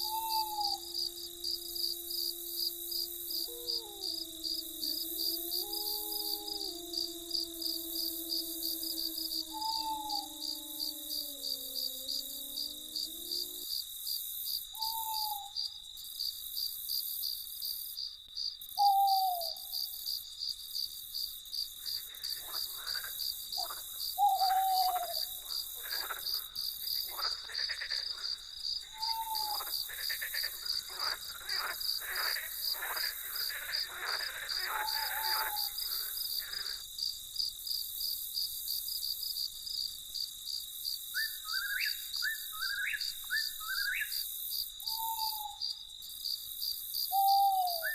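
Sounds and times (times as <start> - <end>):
night bird falling calls: 0.0 - 12.7, 18.8 - 19.6, 23.6 - 25.3, 28.9 - 32.4, 44.9 - 45.6
crickets chirping: 0.0 - 47.9.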